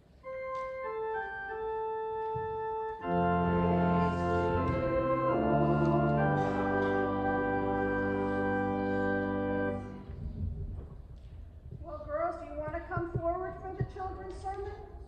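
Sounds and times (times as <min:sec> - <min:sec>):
organ playing: 0:00.0 - 0:10.3.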